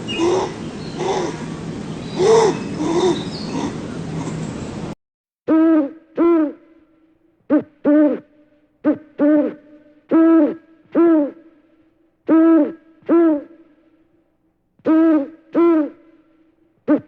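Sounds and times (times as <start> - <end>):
owl hooting: 0.0 - 4.4, 5.5 - 6.6, 7.5 - 11.5, 12.3 - 13.6, 14.8 - 16.1
noisy animal sound: 0.0 - 4.5.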